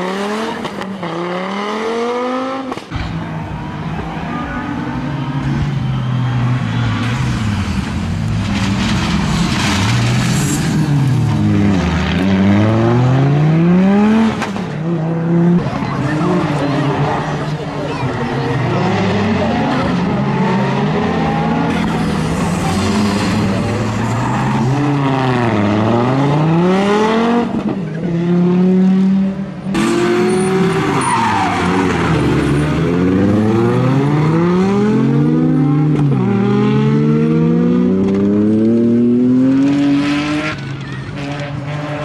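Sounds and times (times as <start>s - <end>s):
rally car engine revving: 6.6s - 42.0s.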